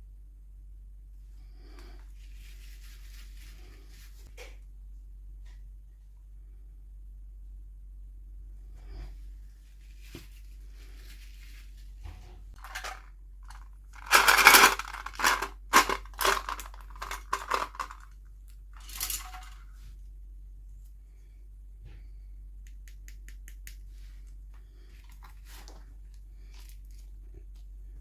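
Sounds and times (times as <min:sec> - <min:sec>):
packaging crackling and clicking: 0:12.6 - 0:18.0
packaging rustling: 0:12.6 - 0:18.0.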